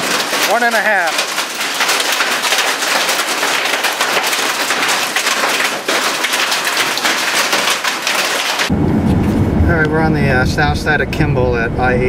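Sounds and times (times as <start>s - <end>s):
raindrops ticking close by: 0.0s - 8.7s
rain falling: 0.0s - 8.8s.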